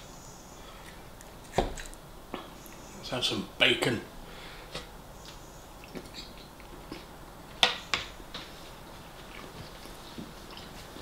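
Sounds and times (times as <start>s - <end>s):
wet chewing and mouth smacks: 5.8s - 7.1s.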